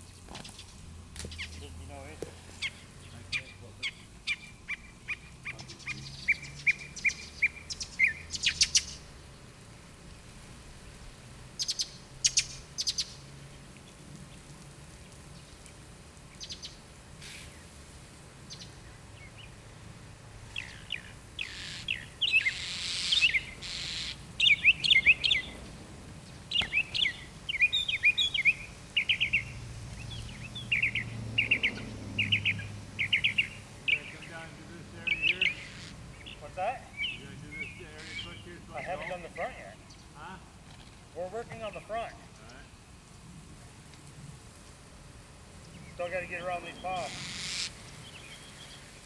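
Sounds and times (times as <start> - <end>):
small birds chirping: 0.0 - 42.8, 43.6 - 49.0
brief hiss: 17.2 - 17.6.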